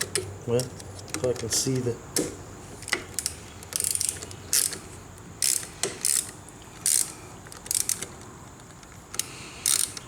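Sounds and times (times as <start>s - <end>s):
hand ratchet clicking: 2.2s - 4.8s, 5.4s - 8.3s, 9.1s - 10.0s.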